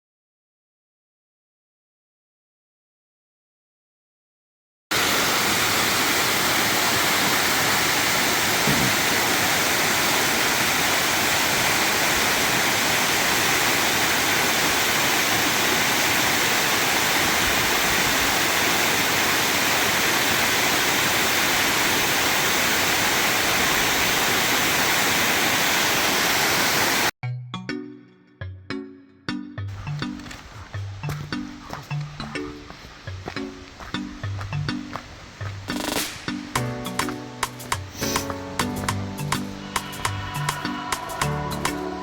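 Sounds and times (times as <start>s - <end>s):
waterfall rushing: 4.9s - 27.1s, 34.8s - 42.0s.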